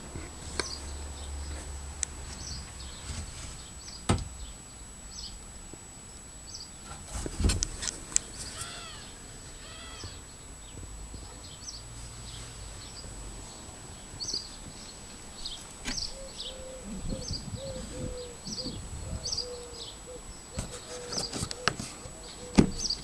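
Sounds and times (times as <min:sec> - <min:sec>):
animal calls: 0:08.3 - 0:10.5
wavering animal call: 0:08.4 - 0:10.4.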